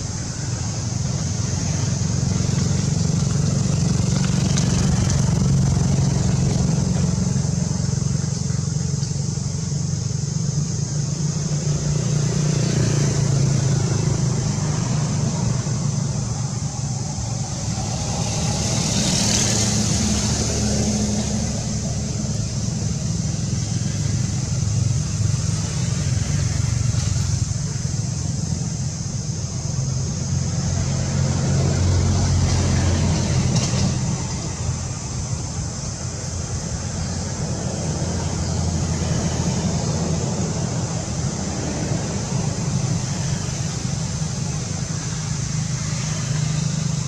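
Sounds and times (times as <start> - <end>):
high-pitched hiss: 0.0 - 47.0
road traffic rumble: 0.0 - 47.0.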